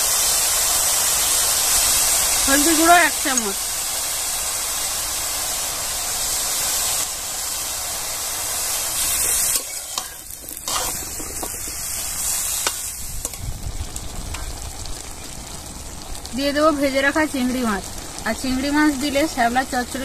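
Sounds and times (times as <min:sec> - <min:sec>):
food sizzling in hot oil: 0:00.0 - 0:20.0
spatula scraping a wok: 0:08.6 - 0:13.6.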